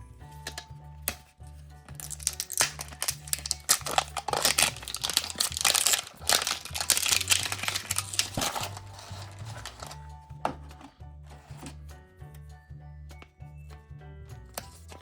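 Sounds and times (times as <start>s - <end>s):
quiet background music: 0.0s - 15.0s
wrapping crinkling and tearing: 2.0s - 10.0s.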